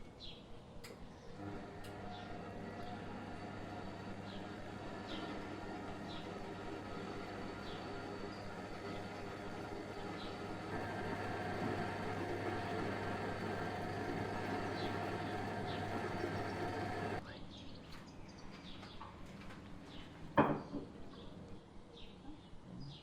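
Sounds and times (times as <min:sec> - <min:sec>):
mechanical hum with tones: 0:00.8 - 0:17.4.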